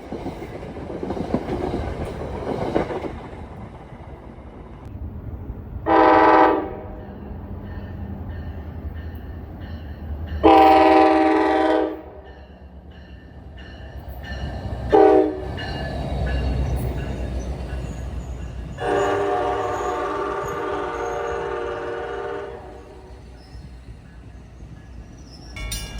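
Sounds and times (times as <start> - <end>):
low train rumble: 0.0 - 25.9
train horn blasts: 5.9 - 7.0, 10.4 - 12.2, 14.9 - 15.5, 18.8 - 23.2.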